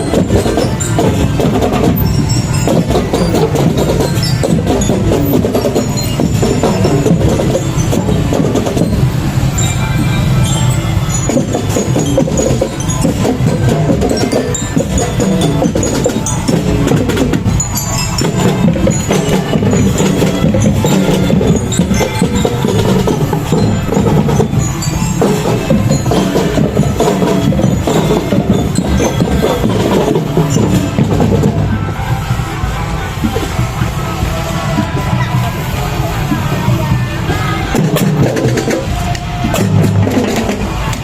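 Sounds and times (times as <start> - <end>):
high bell-like notes: 0.0 - 38.8
marching band drums: 0.0 - 41.0.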